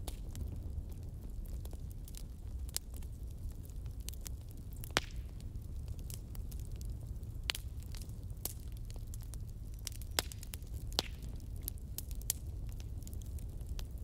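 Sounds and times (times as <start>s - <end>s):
fire crackling and popping: 0.0s - 14.0s.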